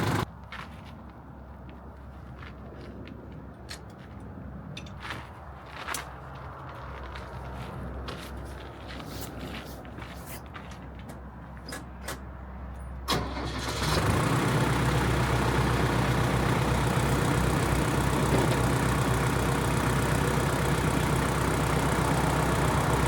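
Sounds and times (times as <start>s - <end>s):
tractor engine running: 0.0s - 0.3s, 13.1s - 23.0s.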